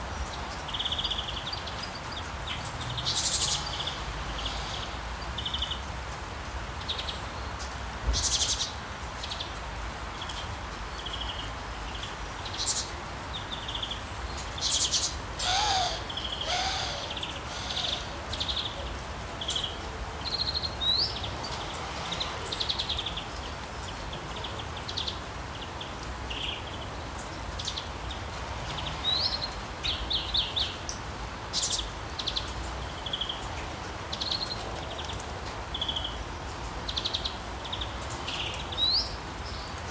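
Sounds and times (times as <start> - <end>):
small birds chirping and trilling: 6.8 - 39.8
steady background hiss: 7.7 - 21.2
low sliding bird calls: 15.4 - 18.4.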